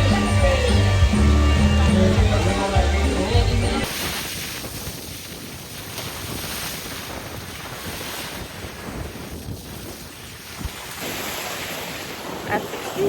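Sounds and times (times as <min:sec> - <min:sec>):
wind buffeting microphone: 0:02.3 - 0:13.0
ocean surf: 0:10.5 - 0:13.0.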